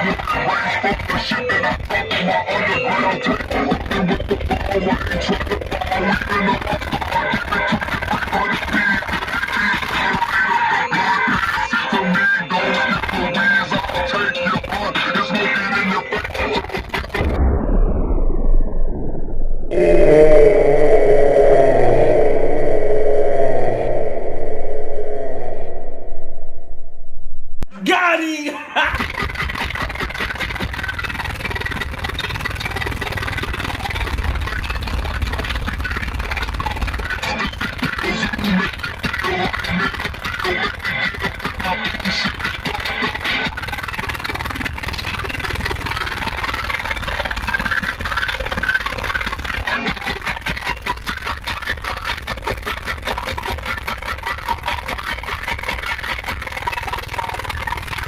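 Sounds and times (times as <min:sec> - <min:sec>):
loud subwoofer bass: 0:16.8 - 0:27.7
rapid crackling rattle: 0:28.9 - 0:58.0.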